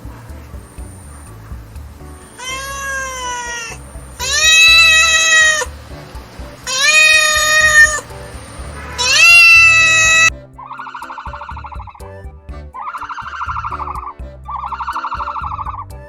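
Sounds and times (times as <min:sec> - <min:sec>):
cat meowing: 0:02.4 - 0:05.8, 0:06.6 - 0:08.1, 0:08.8 - 0:10.3.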